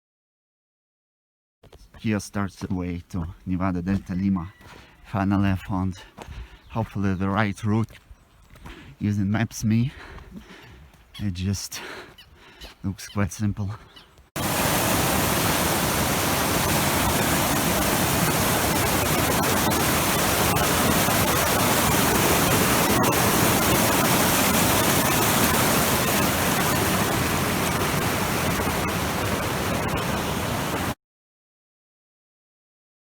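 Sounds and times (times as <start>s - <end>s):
mountain stream rushing: 14.4s - 31.0s.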